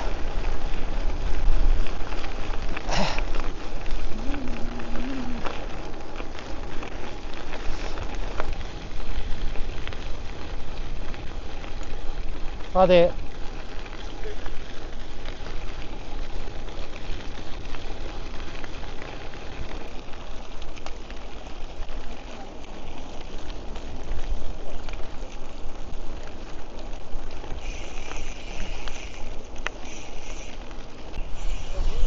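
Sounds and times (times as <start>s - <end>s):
tyres rolling over path: 0.0s - 32.0s
high steady buzz: 27.6s - 32.0s
wind rushing over microphone: 30.6s - 32.0s.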